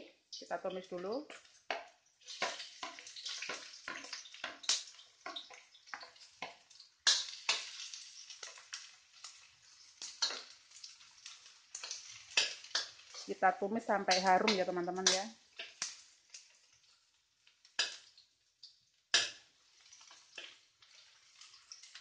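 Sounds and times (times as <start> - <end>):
shallots sizzling in a wok: 0.0 - 22.0
metal spatula scraping a wok: 2.2 - 13.4, 14.1 - 15.8.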